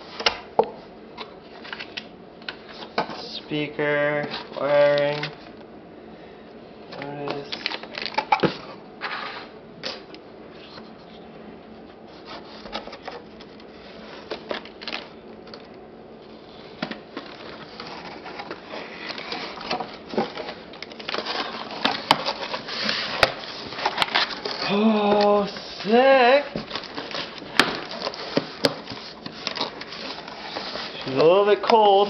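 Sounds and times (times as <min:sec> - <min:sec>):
packaging rustling and crinkling: 0:07.1 - 0:08.7, 0:12.1 - 0:15.7, 0:16.3 - 0:32.0.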